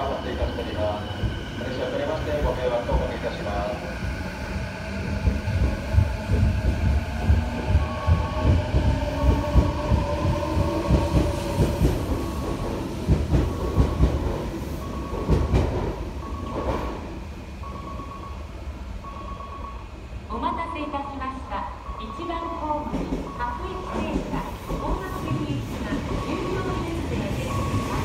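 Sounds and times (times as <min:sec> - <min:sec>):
train rumbling into station: 0:00.0 - 0:28.0
short high beeps: 0:19.0 - 0:19.8.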